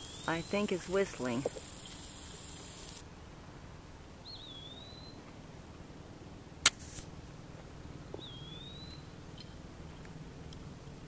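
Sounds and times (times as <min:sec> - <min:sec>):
bird whistling: 0:04.3 - 0:05.2, 0:08.2 - 0:09.0.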